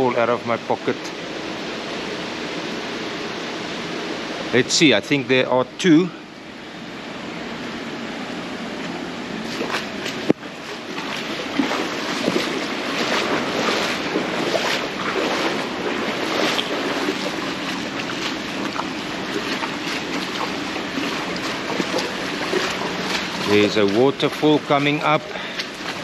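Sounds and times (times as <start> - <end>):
mountain stream rushing: 9.2 - 26.0
water splashes and knocks: 9.4 - 26.0.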